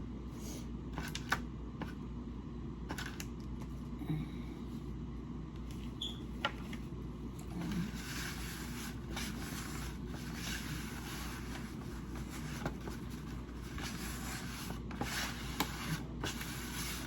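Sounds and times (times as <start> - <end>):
low room hum: 0.0 - 17.0
paper towel rustling: 6.6 - 17.0.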